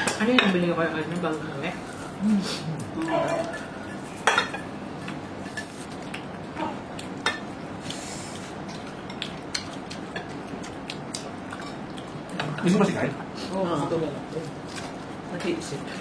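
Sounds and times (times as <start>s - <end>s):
background hum: 0.0s - 16.0s
cutlery clinking on plates: 3.1s - 4.7s.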